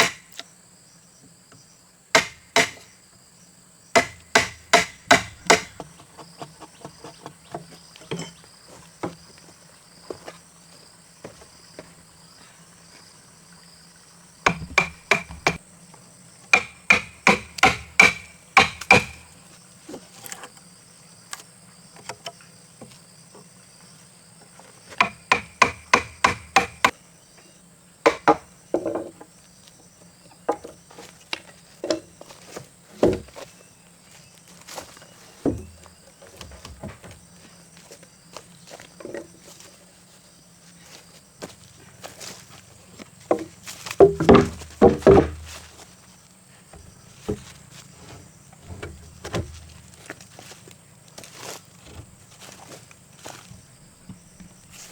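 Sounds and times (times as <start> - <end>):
hammer striking wood: 0.0 - 0.4, 2.2 - 2.9, 4.0 - 5.9, 14.5 - 15.6, 16.5 - 19.3, 25.0 - 26.9, 28.1 - 28.5, 43.3 - 45.5
insects droning: 0.0 - 54.9.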